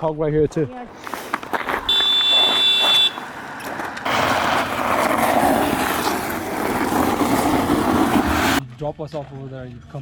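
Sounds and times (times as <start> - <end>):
vehicle running with rushing noise: 2.5 - 8.6.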